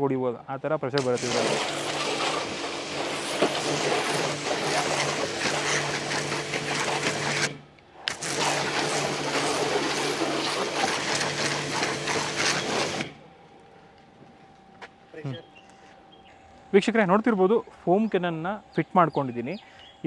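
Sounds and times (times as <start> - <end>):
high-pressure water jet hissing: 1.0 - 13.2
pressure washer pump humming: 1.0 - 13.3.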